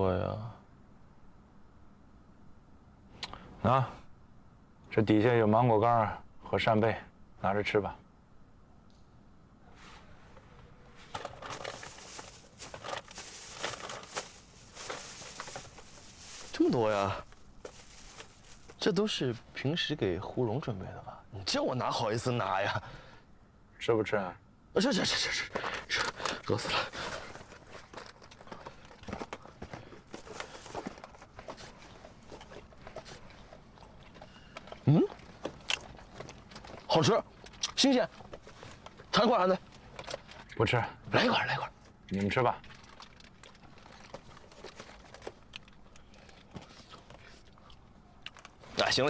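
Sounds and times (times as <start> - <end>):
snack packets rustling: 11.0 - 19.4, 25.0 - 40.5, 42.2 - 49.0
plastic wrappers crinkling: 11.1 - 19.3, 25.0 - 40.5, 42.2 - 49.0.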